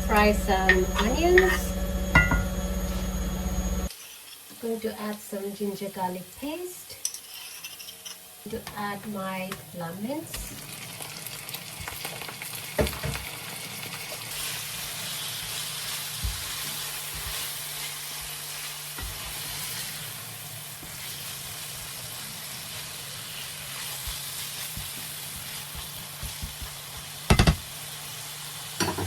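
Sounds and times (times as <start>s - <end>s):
onions sizzling in a frying pan: 0.0s - 7.5s, 8.3s - 29.0s
utensil tapping against pan: 25.8s - 27.6s.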